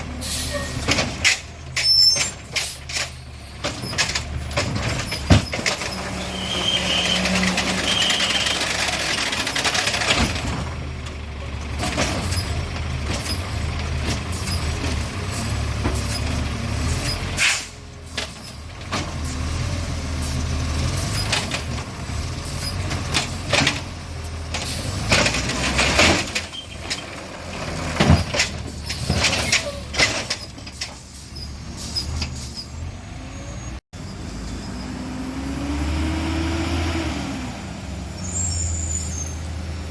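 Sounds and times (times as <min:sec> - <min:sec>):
garbage truck engine running: 0:00.0 - 0:34.3
air brake hisses: 0:17.4 - 0:17.8.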